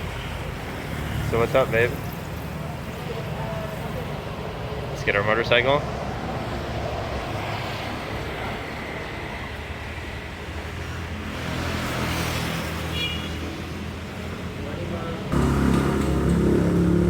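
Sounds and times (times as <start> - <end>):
vehicle engine running: 15.3 - 17.0.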